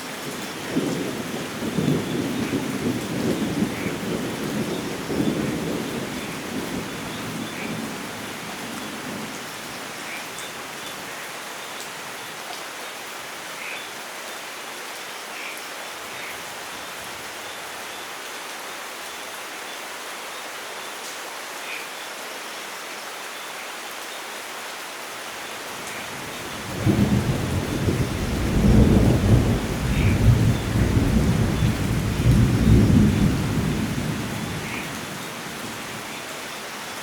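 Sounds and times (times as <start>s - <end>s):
rain falling: 0.0s - 37.0s
thunder rumble: 26.4s - 35.1s.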